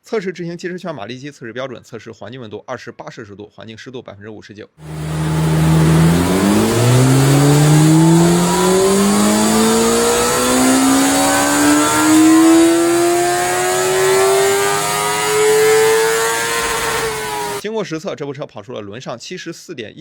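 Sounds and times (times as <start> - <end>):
motorcycle engine revving on dyno: 4.8 - 17.6.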